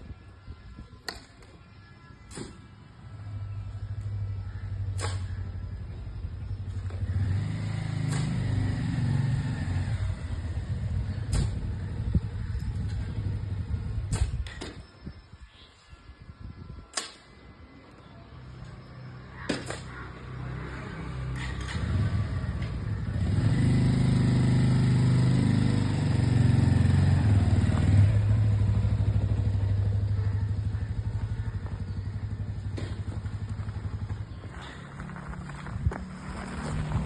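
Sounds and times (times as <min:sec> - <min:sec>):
vehicle engine passing by: 0:05.3 - 0:13.9, 0:19.8 - 0:37.0.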